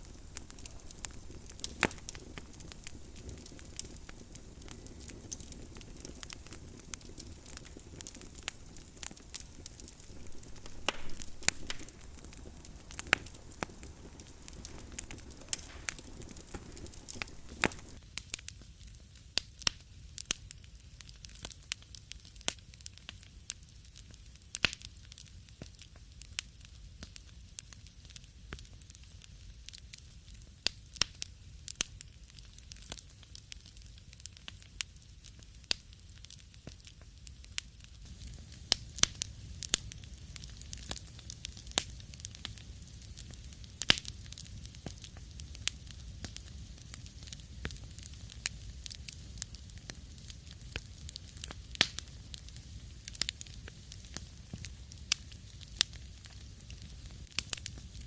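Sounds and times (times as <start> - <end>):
background hiss: 0.0 - 18.0, 38.0 - 58.0
wood fire crackling: 0.0 - 58.0.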